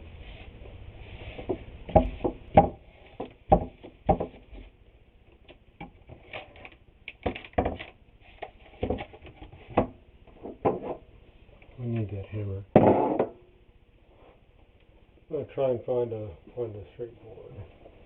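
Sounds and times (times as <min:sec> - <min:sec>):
wooden boards and tools knocking: 0:01.4 - 0:04.7, 0:05.8 - 0:11.0, 0:12.8 - 0:13.4.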